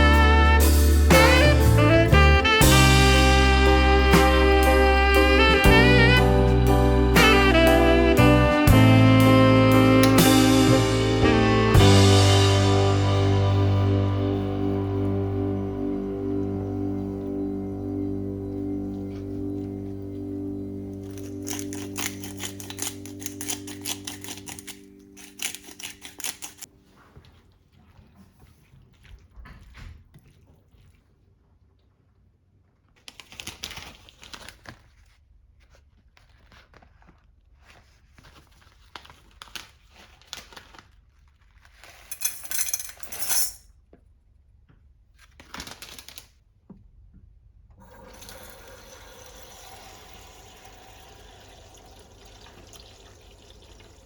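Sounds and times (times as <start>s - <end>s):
utensils clicking and knocking: 21.0s - 26.7s
tap water running: 47.8s - 54.0s.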